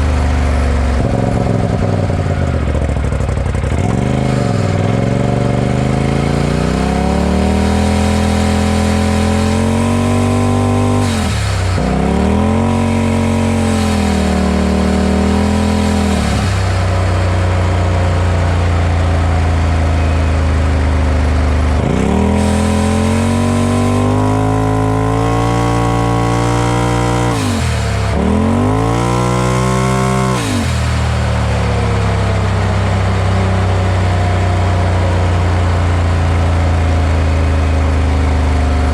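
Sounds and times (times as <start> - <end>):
turbocharged engine revving: 0.0 - 38.9.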